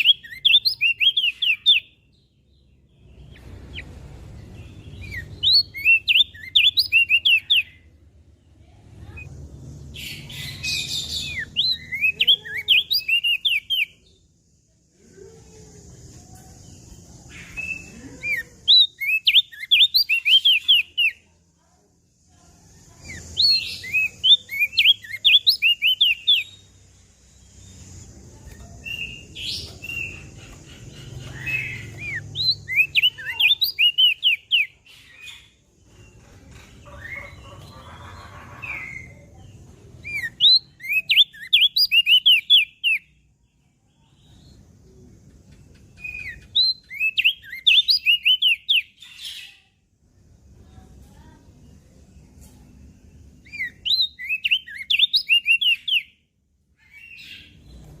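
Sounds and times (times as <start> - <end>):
bird chirping song: 0.0 - 58.0.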